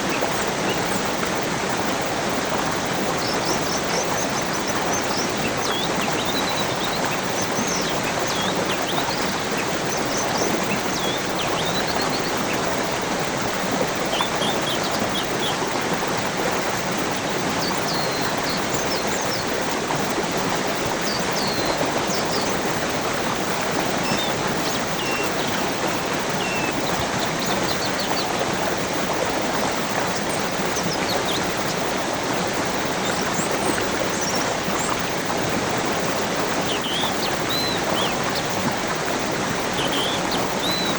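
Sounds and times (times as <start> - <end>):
stream water rushing: 0.0 - 40.9
birds chirping: 2.8 - 15.6, 23.5 - 29.0, 35.9 - 40.9.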